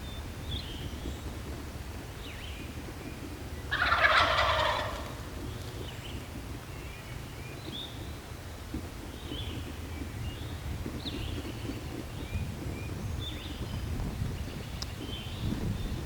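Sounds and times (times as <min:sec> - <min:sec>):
songbirds chirping faintly: 0:00.0 - 0:16.0
turkey gobbling: 0:03.7 - 0:05.3.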